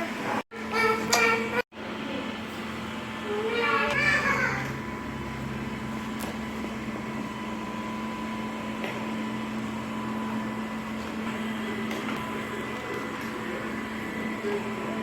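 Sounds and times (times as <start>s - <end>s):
robot vacuum cleaner running: 0.2s - 15.0s.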